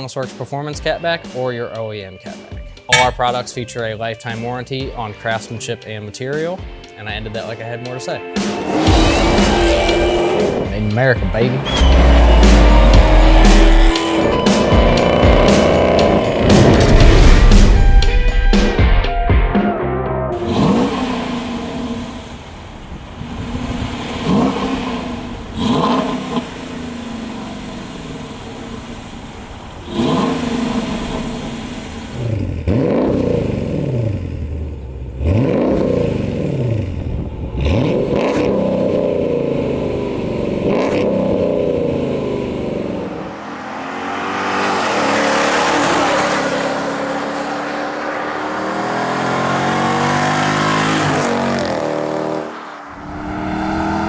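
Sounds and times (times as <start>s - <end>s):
car accelerating hard: 8.4s - 17.9s, 20.3s - 54.0s
car engine revving: 8.4s - 18.0s, 20.3s - 54.0s.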